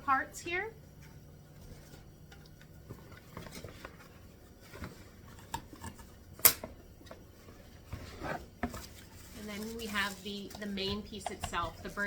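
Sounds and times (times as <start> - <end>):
packaging rustling: 1.7 - 6.1.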